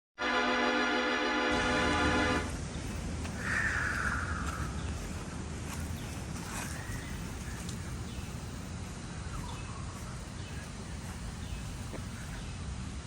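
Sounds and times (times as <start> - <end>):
steady low rumble: 0.2 - 13.0
faint short bird calls: 3.4 - 4.9.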